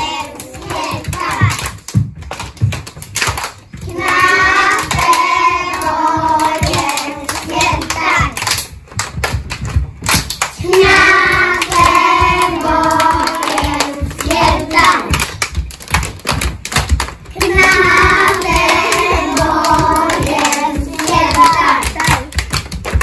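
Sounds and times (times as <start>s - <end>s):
children singing: 0.0s - 1.8s, 3.8s - 8.4s, 10.6s - 15.2s, 17.4s - 22.4s
hands clapping: 0.0s - 23.0s.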